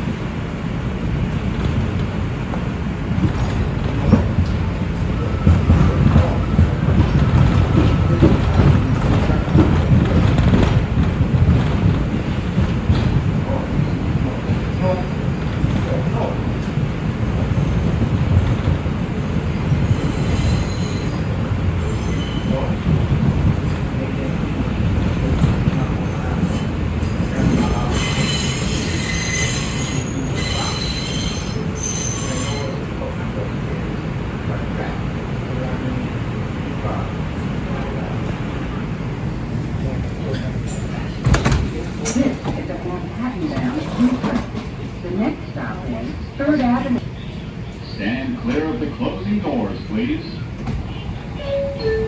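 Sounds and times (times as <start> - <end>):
train wheels rumbling on rails: 0.0 - 52.0
wheels squealing on rails: 19.2 - 24.4, 25.2 - 33.1.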